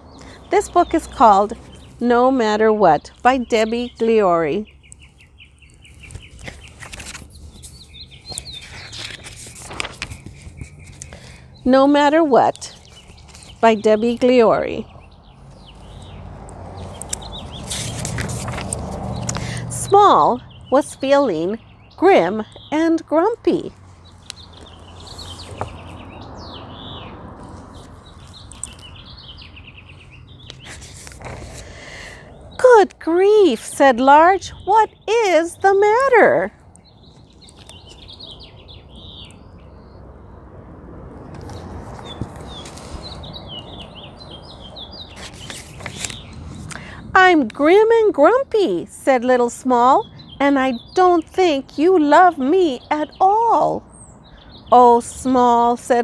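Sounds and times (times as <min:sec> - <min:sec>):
small birds chirping: 0:00.0 - 0:40.5, 0:41.2 - 0:56.0
book pages rustling and tapping: 0:05.9 - 0:11.2, 0:12.8 - 0:13.6, 0:16.8 - 0:19.5, 0:24.3 - 0:26.0, 0:30.5 - 0:31.7, 0:41.2 - 0:43.2, 0:45.1 - 0:46.7.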